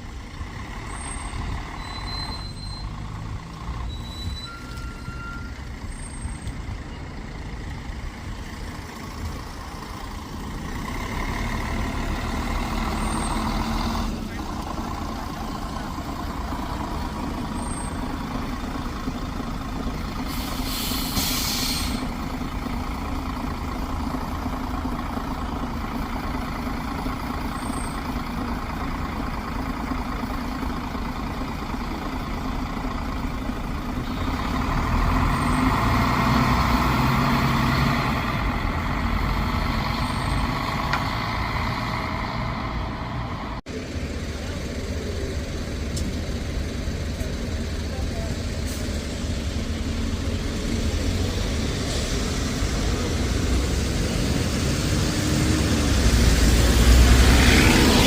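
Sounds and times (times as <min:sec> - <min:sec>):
bus engine rumbling: 0:00.0 - 0:58.0
air brake hiss: 0:20.3 - 0:22.1.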